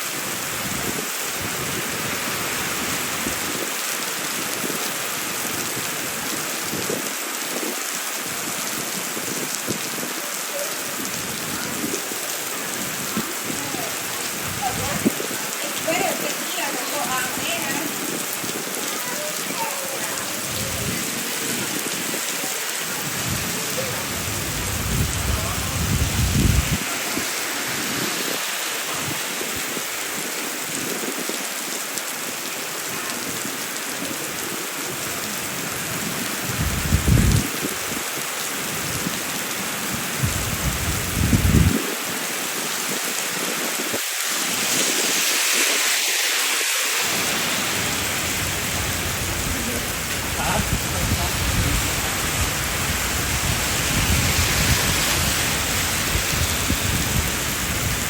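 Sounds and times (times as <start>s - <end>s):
heavy rain falling: 0.0s - 58.0s
low rumbles: 47.2s - 58.0s.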